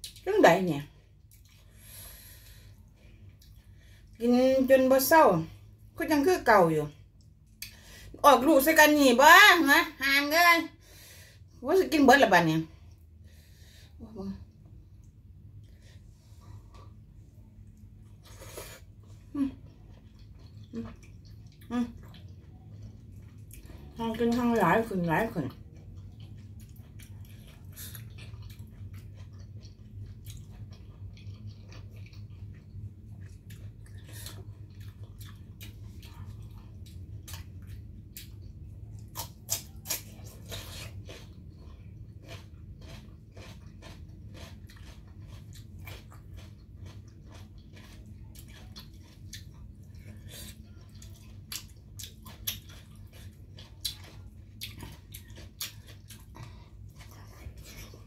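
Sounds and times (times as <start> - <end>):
low hum: 12.4 - 58.0
chewing and biting: 17.7 - 24.0, 25.5 - 58.0.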